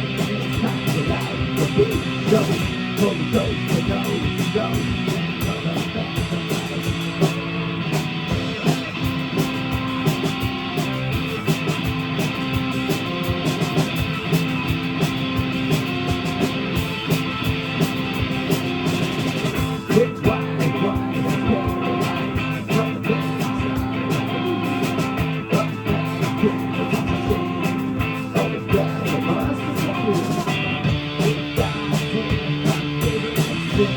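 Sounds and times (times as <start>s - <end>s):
drum kit beat: 0.0s - 33.9s
electric guitar: 0.0s - 33.9s.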